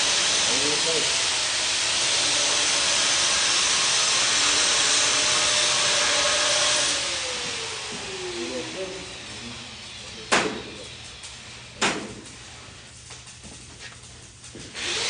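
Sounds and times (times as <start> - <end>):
grinder motor whine: 0.0 - 10.0, 14.7 - 15.0
angle grinder grinding metal: 0.0 - 11.4, 14.7 - 15.0.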